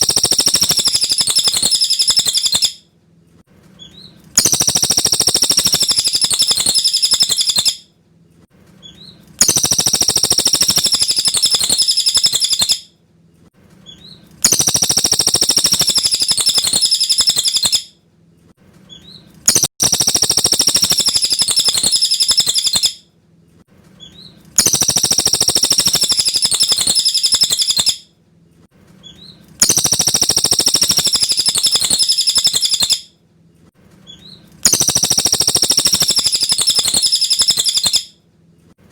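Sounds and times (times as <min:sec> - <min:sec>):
bird chattering song: 0:00.0 - 0:02.8, 0:03.8 - 0:07.8, 0:08.8 - 0:12.8, 0:13.9 - 0:17.9, 0:18.9 - 0:23.0, 0:24.0 - 0:28.0, 0:29.0 - 0:33.1, 0:34.1 - 0:38.1.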